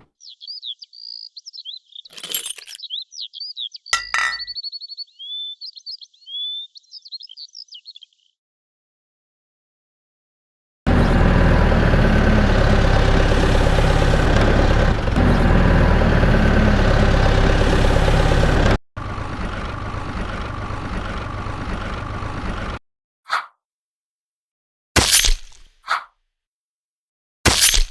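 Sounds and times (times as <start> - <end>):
tractor engine running: 10.9 - 22.8.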